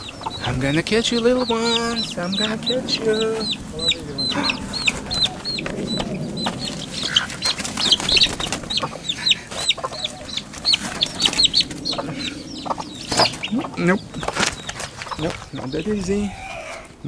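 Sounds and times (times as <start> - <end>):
baby chicks peeping: 0.0 - 17.0
scuffing and rustling: 13.1 - 15.6.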